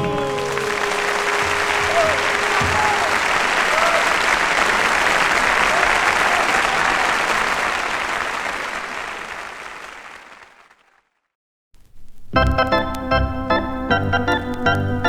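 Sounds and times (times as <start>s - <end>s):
organ chords: 0.0s - 5.2s, 12.4s - 15.0s
audience applause: 0.0s - 11.2s.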